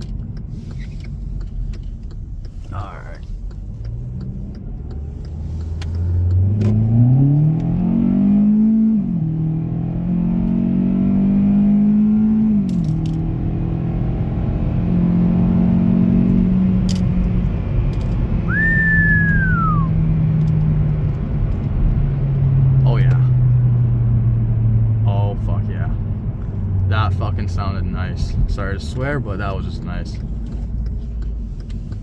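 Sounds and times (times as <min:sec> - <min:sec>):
car engine accelerating: 0:00.0 - 0:32.0
whistle falling in pitch: 0:18.5 - 0:20.0.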